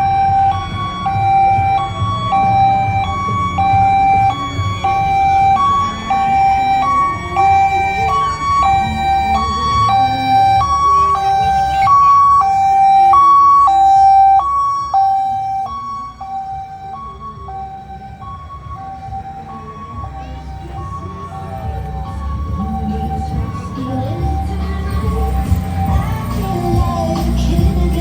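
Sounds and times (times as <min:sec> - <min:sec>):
second siren wailing faintly: 0:00.0 - 0:27.3
fire engine hi-lo siren: 0:00.0 - 0:28.0
low engine rumble: 0:00.0 - 0:28.0.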